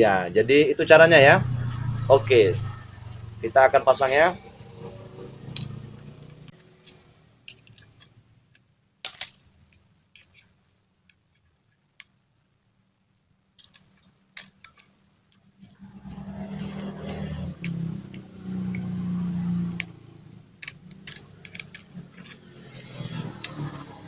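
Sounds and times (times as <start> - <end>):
metal engine parts clicking: 5.5 - 9.2, 13.6 - 19.0, 19.6 - 23.9.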